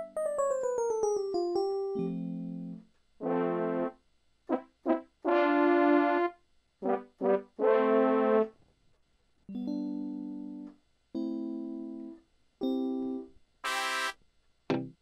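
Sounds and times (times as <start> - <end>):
synthesized brass notes and stabs: 13.6 - 14.2.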